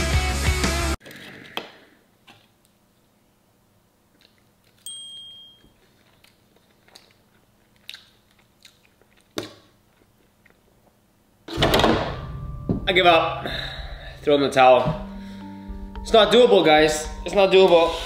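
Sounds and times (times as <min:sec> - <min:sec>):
person chewing crispy food: 0:05.8 - 0:10.9
loud sudden sound: 0:11.5 - 0:15.1
short high ping: 0:12.0 - 0:14.3.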